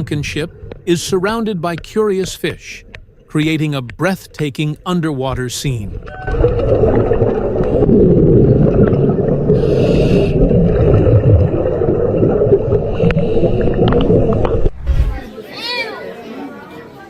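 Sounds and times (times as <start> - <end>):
muffled underwater rumble and gurgle: 5.9 - 15.3.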